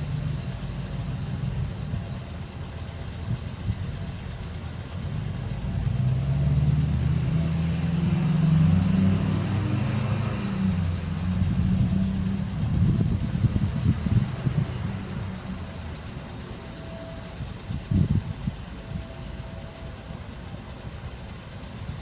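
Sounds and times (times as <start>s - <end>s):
vehicle engine passing by: 5.3s - 17.1s.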